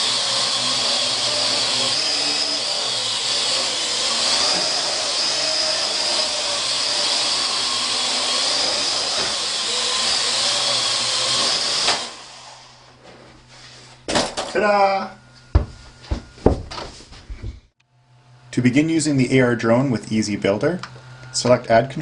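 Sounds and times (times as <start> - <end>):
drone propellers whining: 0.0 - 13.0.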